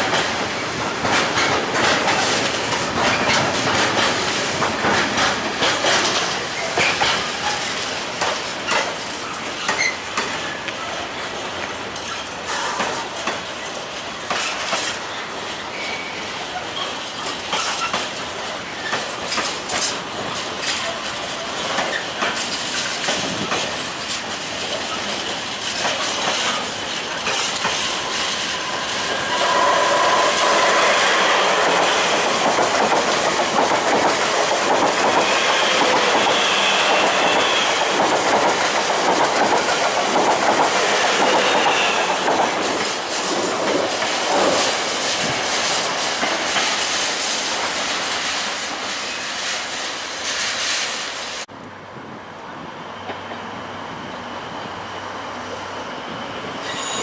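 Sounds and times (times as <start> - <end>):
train wheels clattering: 0.0 - 15.1, 16.8 - 51.0
metallic wheel squeal: 56.6 - 57.0.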